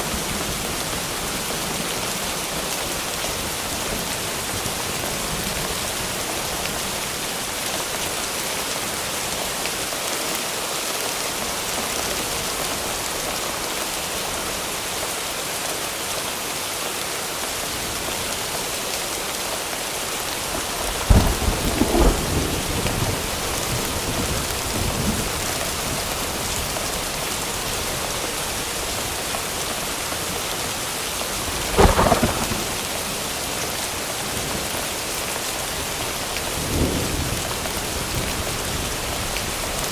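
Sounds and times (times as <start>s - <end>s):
rain hiss: 0.0s - 39.9s
thunder crack rumbling: 20.4s - 25.9s, 31.4s - 33.5s.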